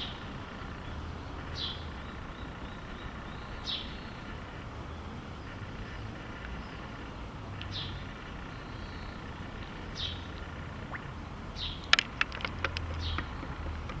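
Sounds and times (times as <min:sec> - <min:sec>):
low steady rumble: 0:00.0 - 0:14.0
fish sucking food at water surface: 0:10.4 - 0:11.3.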